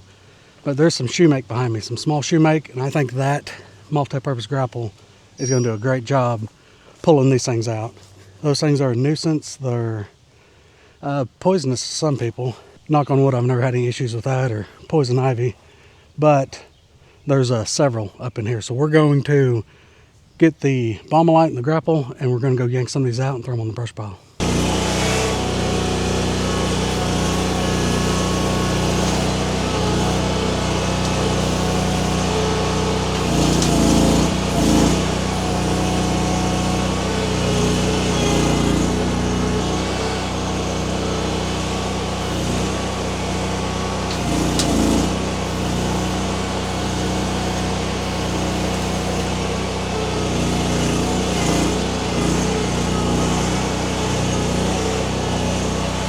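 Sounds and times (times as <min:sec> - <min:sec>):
skid steer engine running: 0:24.4 - 0:56.0.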